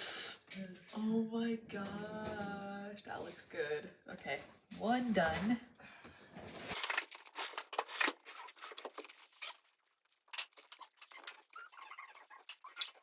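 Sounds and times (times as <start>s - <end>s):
packaging crinkling: 6.5s - 13.0s.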